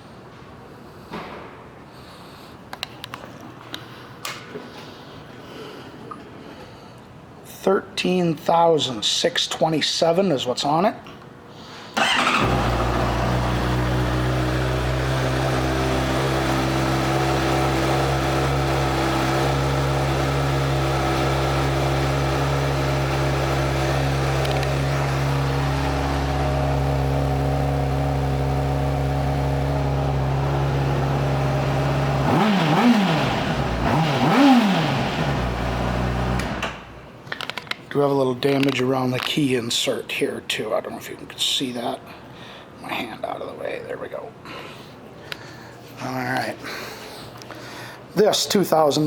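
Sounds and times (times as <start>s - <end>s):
engine throttle blips: 12.0s - 37.0s
motorcycle engine starting and idling: 12.0s - 37.5s.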